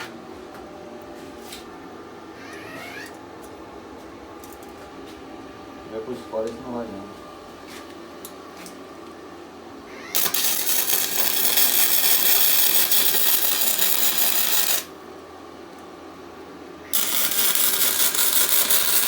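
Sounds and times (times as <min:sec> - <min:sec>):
power tool on metal: 0:10.0 - 0:14.9, 0:16.9 - 0:19.0.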